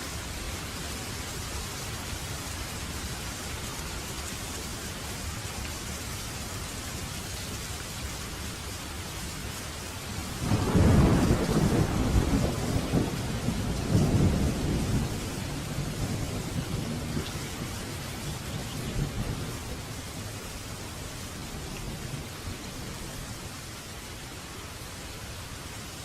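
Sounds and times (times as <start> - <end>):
steady rain: 0.0 - 26.0
rolling thunder rumble: 10.4 - 20.3.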